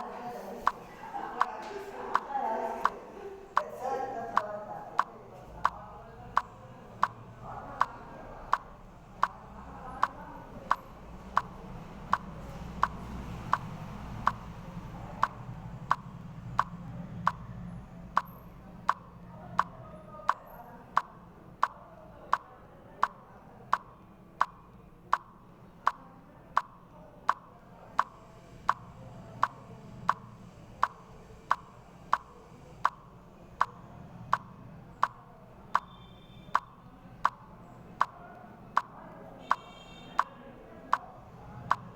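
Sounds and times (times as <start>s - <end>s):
sharp clicking: 6.4s - 7.2s, 7.8s - 9.4s, 10.0s - 14.5s, 15.2s - 17.5s, 18.2s - 35.2s, 36.5s - 38.2s.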